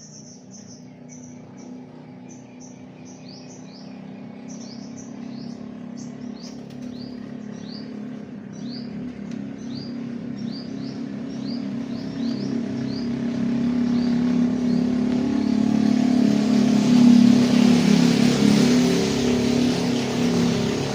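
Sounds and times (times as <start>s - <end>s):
small bird chirping: 0.0s - 15.7s
steady low drone: 0.0s - 20.9s.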